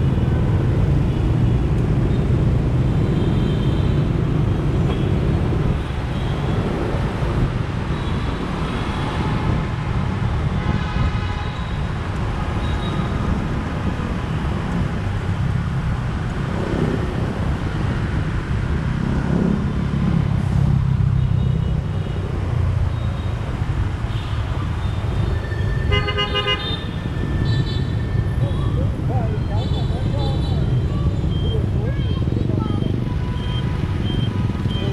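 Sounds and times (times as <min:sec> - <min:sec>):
wind: 0:00.0 - 0:34.9
vehicle horns honking: 0:25.8 - 0:28.0.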